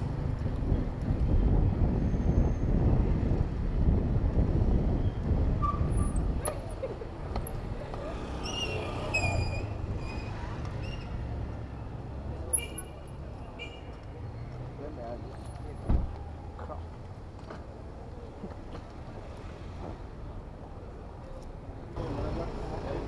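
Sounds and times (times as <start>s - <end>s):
wind buffeting microphone: 0.0s - 7.4s
road and traffic rumble: 0.0s - 23.0s
brief high-pitched squeal: 8.3s - 11.1s.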